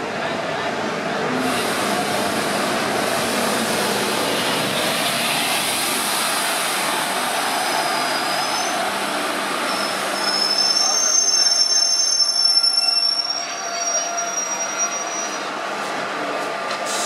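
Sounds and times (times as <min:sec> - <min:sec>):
train wheels on track: 0:00.0 - 0:17.0
high wheel squeal: 0:07.6 - 0:08.9, 0:09.6 - 0:15.6.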